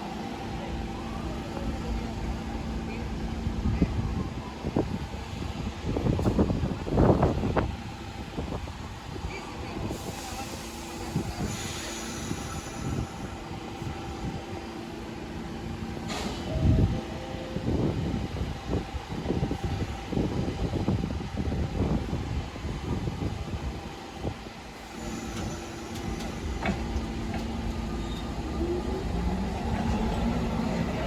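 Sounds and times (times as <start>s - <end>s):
subway train hum: 0.0s - 31.0s
hiss of air: 9.9s - 14.0s
low knocks and rail clatter: 25.3s - 31.0s.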